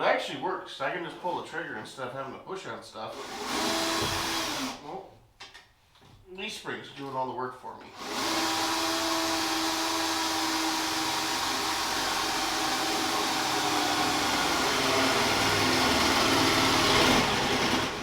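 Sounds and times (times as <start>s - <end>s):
drill boring through metal: 3.2s - 4.8s, 7.9s - 18.0s.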